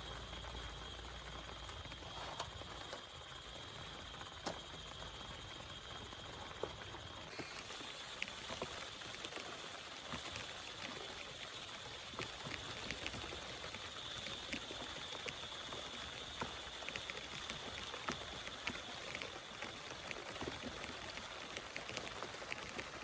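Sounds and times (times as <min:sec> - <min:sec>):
rain hiss: 0:07.3 - 0:23.0.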